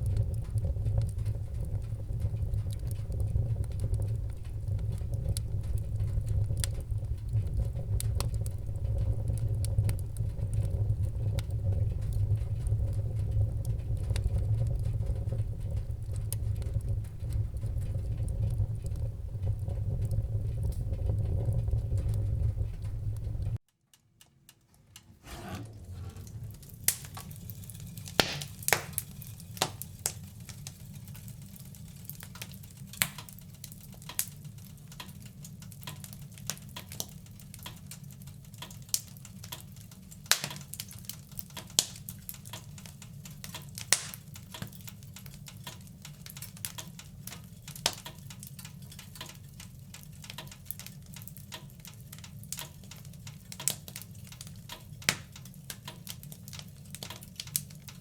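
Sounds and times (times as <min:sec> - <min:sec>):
low rumble of flames: 0:00.0 - 0:23.6, 0:24.9 - 0:58.0
fire snaps and pops: 0:00.0 - 0:58.0
wood fire crackling: 0:00.0 - 0:58.0.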